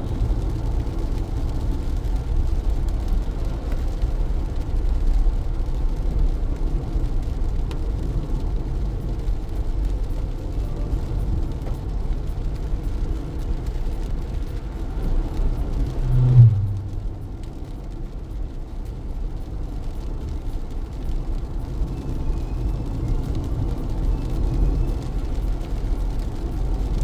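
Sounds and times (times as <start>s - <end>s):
rain: 0.0s - 27.0s
road and tyre rumble: 0.0s - 27.0s
sound falling sharply in pitch: 15.9s - 17.3s.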